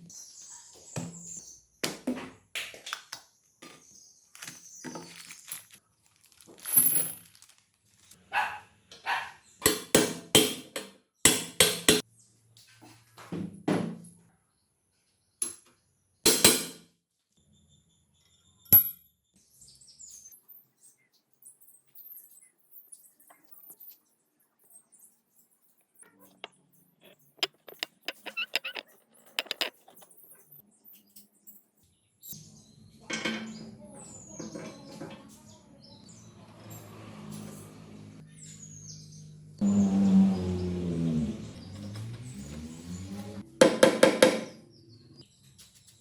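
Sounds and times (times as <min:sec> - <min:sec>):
tools knocking and scraping: 0:26.4 - 0:30.3.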